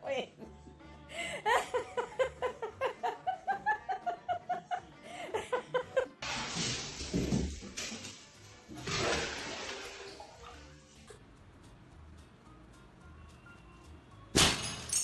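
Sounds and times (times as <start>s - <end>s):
person laughing: 1.2s - 6.2s.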